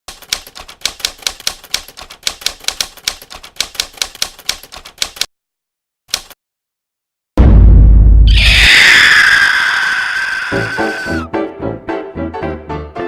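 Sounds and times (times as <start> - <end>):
typewriter keys clacking: 0.1 - 5.3, 6.1 - 6.4.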